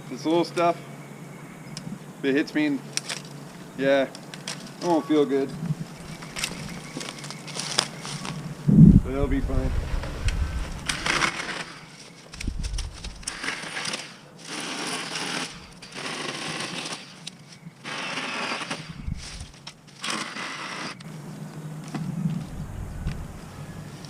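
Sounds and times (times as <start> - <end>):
battery chainsaw cutting brush: 17.8 - 21.0.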